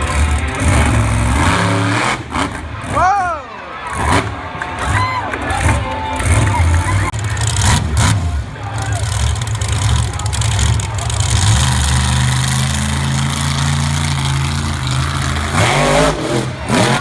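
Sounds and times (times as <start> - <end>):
monster truck engine roaring: 0.0 - 17.0.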